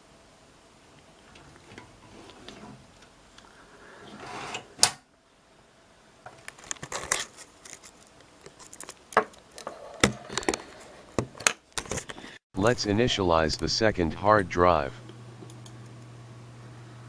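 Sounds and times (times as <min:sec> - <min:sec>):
small clicks and rattles: 0:06.3 - 0:10.8.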